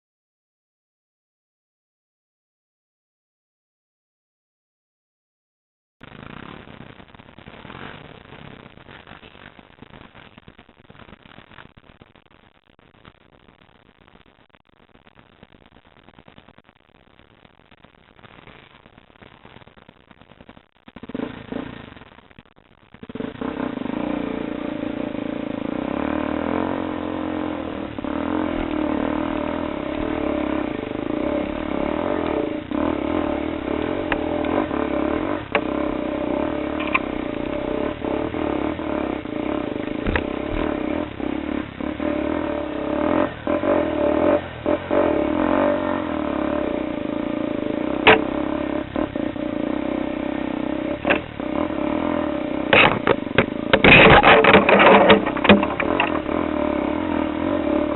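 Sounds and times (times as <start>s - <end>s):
motorcycle engine running: 23.0s - 57.9s
sharp knocks and clatter: 40.0s - 40.7s, 52.7s - 56.2s.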